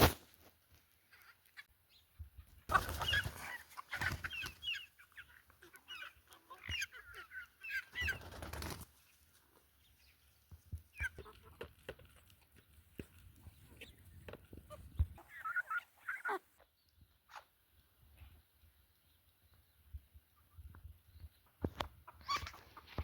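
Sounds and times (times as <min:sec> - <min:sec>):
birds chirping: 0:01.1 - 0:11.6.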